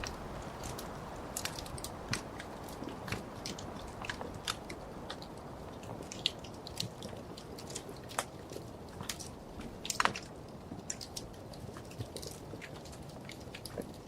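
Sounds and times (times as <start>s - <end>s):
soft hiss: 0.0s - 11.1s
wood fire crackling: 0.0s - 14.0s.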